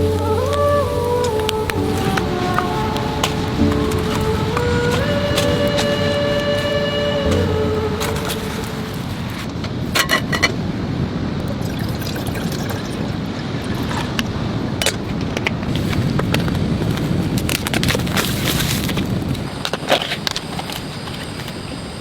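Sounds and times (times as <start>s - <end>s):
raindrops tapping nearby: 0.0s - 10.6s
steady rain: 0.0s - 12.1s
wind: 0.0s - 22.0s.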